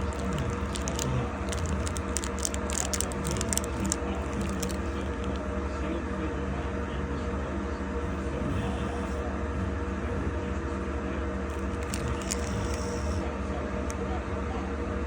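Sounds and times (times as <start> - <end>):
dog snoring and breathing: 0.0 - 5.4, 8.0 - 10.4, 11.5 - 13.4
small clicks and crackles: 0.0 - 5.5, 11.5 - 13.1
steady low hum: 0.0 - 10.6.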